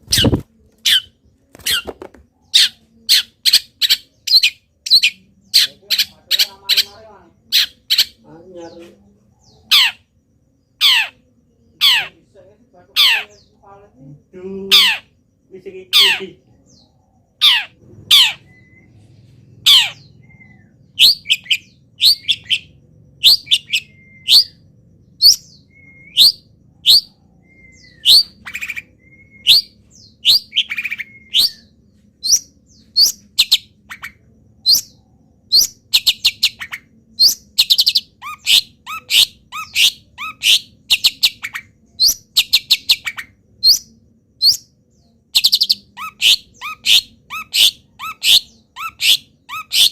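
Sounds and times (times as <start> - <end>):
sharp down-sweeping bird calls: 0.0 - 8.3, 14.6 - 49.9
shrike singing: 0.0 - 49.9
rapid rattling bird trills: 14.6 - 44.7.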